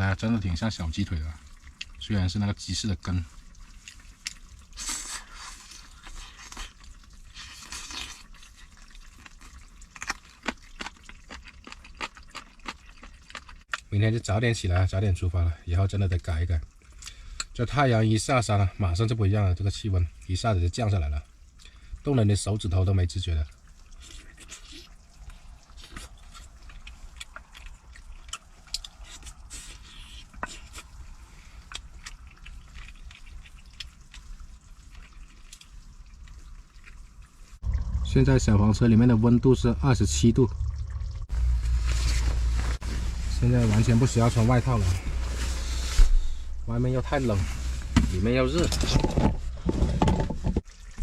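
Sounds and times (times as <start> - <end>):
chewing and lip-smacking: 1.4 - 2.0, 3.3 - 13.9, 16.6 - 17.6, 23.4 - 38.0
faint low hum: 23.4 - 50.0.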